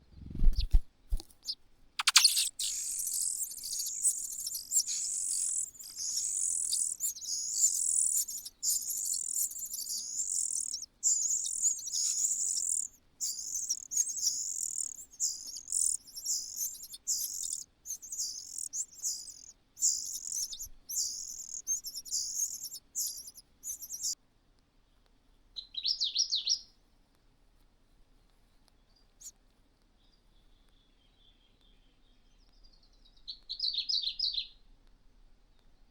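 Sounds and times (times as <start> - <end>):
cuckoo calling: 1.4 - 24.2.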